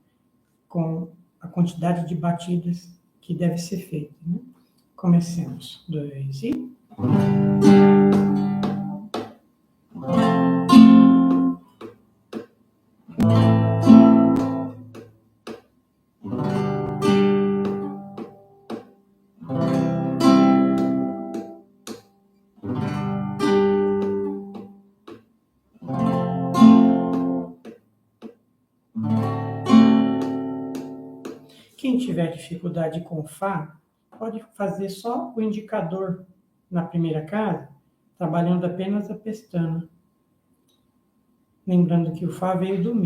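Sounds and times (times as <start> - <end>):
acoustic guitar strumming chords: 7.0 - 12.5, 13.1 - 15.6, 16.2 - 24.9, 25.8 - 27.8, 29.0 - 32.3.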